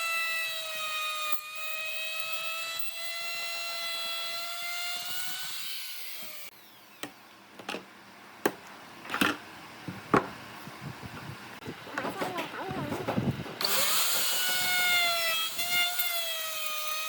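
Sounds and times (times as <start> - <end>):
power tool motor whining: 13.6 - 17.0.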